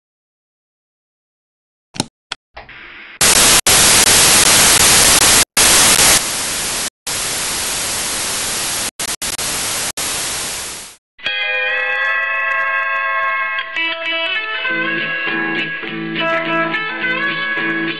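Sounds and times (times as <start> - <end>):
static hiss: 3.2 - 11.0.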